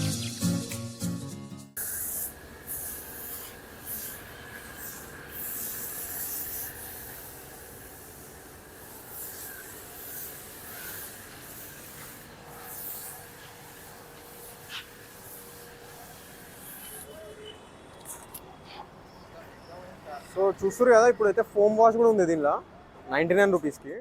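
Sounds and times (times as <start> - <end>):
water spray hissing on car: 1.8 - 17.2.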